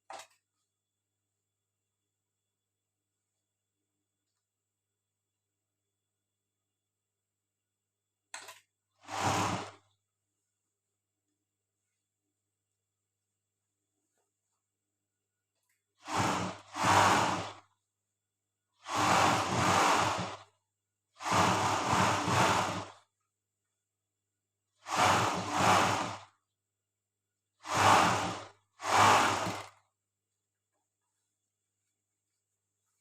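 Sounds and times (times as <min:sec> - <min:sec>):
overlock sewing machine stitching: 0:08.4 - 0:10.0, 0:15.9 - 0:17.8, 0:18.8 - 0:23.1, 0:24.7 - 0:26.4, 0:27.6 - 0:29.9.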